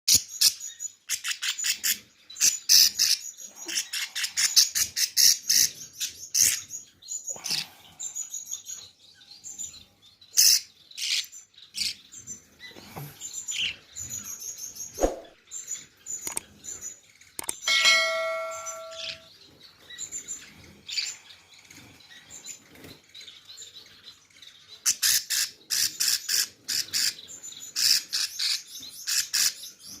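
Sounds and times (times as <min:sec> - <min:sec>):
baby birds chirping: 0:00.1 - 0:30.0
steady pitched tone: 0:17.7 - 0:19.3.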